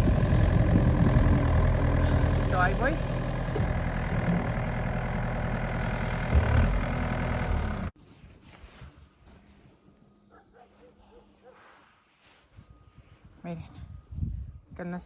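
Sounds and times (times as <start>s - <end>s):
engine idling: 0.0s - 7.9s.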